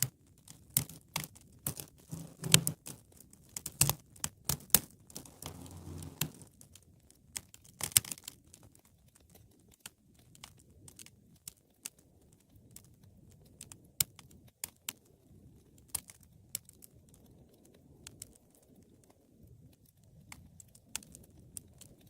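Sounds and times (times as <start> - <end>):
wood fire crackling: 5.1 - 6.5.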